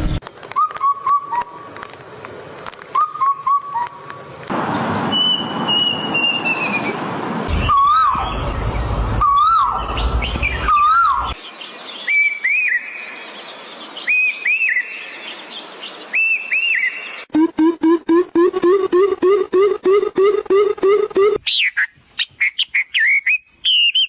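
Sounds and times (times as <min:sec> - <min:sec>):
rising and falling bird call: 0:04.9 - 0:11.4, 0:16.0 - 0:24.0.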